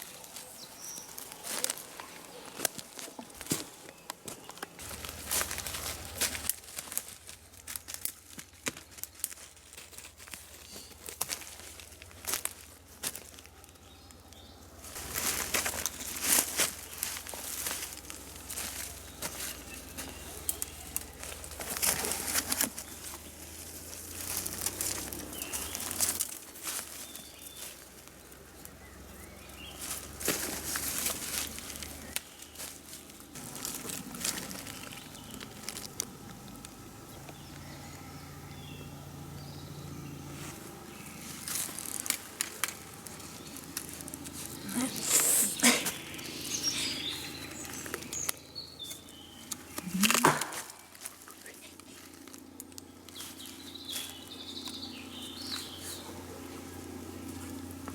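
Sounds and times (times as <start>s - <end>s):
rustling in dry leaf litter: 0.0s - 57.9s
faint bird chirps: 44.4s - 52.1s.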